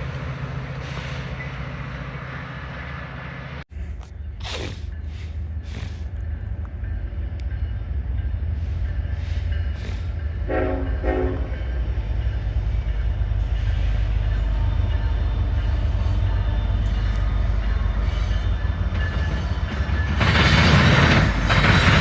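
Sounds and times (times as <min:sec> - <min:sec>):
diesel train rumble: 0:00.0 - 0:22.0
train horn blasts: 0:10.3 - 0:12.0.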